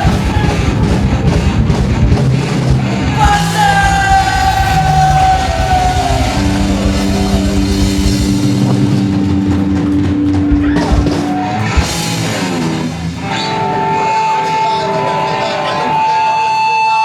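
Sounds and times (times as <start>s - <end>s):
drum kit: 0.0s - 15.4s
distorted electric guitar chords: 0.0s - 17.0s.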